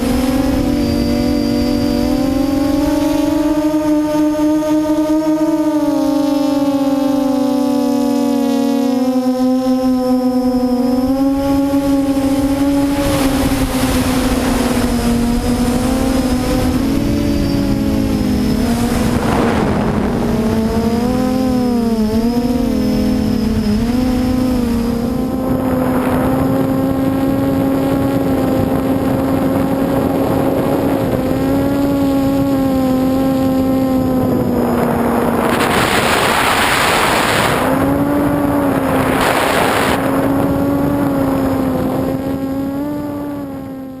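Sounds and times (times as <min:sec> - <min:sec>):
quadcopter propellers whirring: 0:00.0 - 0:44.0
rushing noise: 0:34.3 - 0:40.5.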